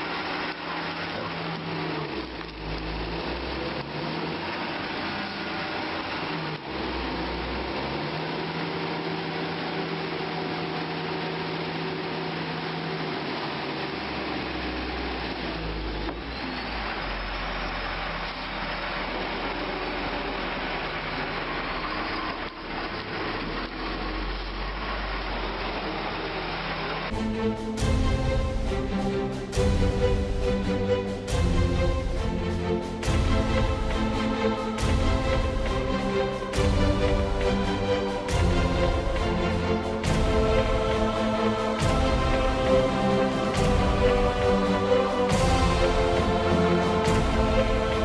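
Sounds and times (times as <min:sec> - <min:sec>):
heavy machinery engines running: 0:00.0 - 0:48.0
music: 0:15.7 - 0:48.0.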